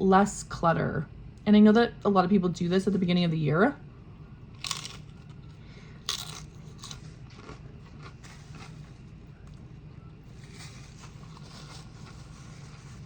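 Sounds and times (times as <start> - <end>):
crunchy chips chewing: 4.5 - 13.0.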